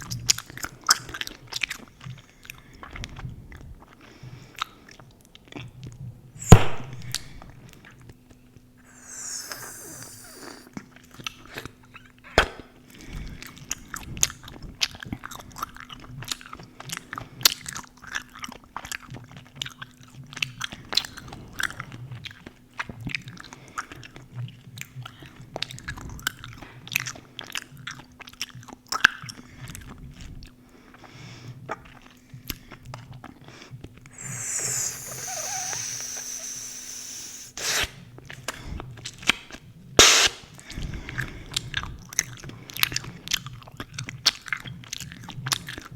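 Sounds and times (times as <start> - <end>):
faint steady hum: 0.0 - 18.8, 19.5 - 43.9
loud sharp snap: 6.4 - 7.5, 12.4 - 12.7, 40.0 - 40.4
gum chewing smacks: 8.8 - 11.8.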